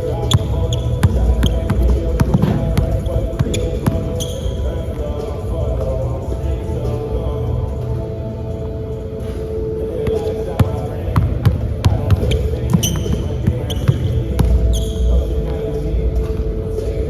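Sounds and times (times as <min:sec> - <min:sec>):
sneaker squeaks: 0:00.0 - 0:05.2, 0:09.2 - 0:16.3
hall hum: 0:00.0 - 0:17.0.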